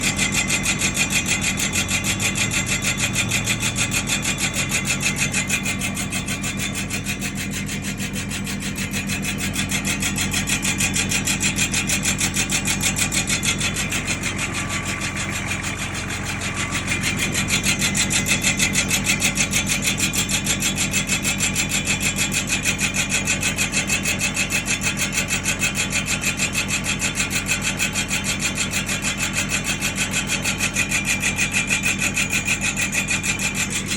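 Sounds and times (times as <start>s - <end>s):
drum brake grinding: 0.0s - 25.4s
engine hum: 0.0s - 33.9s.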